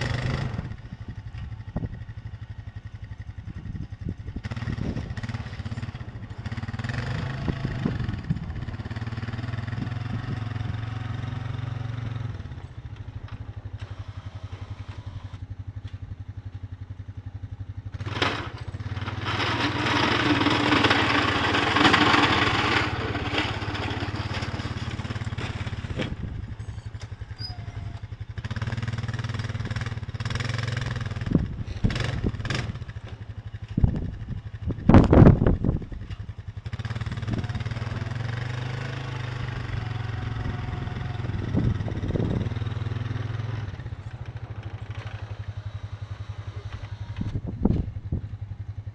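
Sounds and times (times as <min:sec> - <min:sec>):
engine humming: 0:00.0 - 0:48.9.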